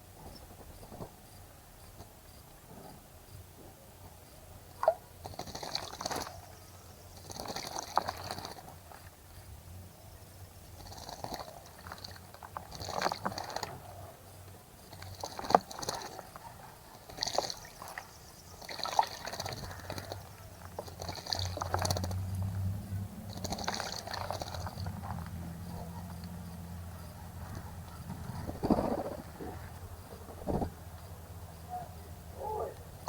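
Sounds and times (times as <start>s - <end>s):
bird wings fluttering: 27.4s - 30.8s.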